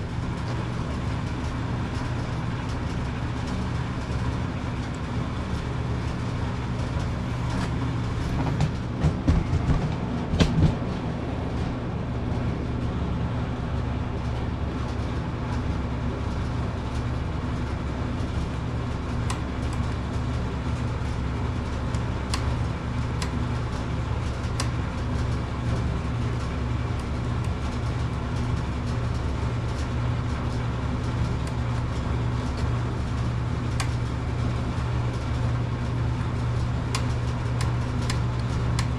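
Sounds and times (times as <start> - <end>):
sharp knocks: 8.4 - 10.9.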